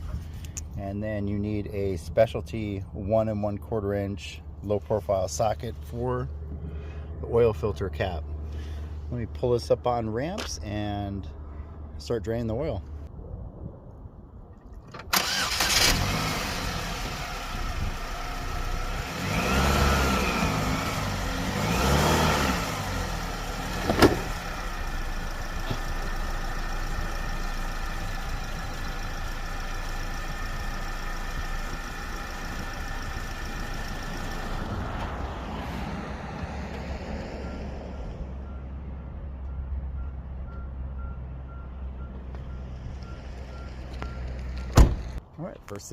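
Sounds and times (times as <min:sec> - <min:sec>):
car engine starting and revving: 0:15.0 - 0:37.8.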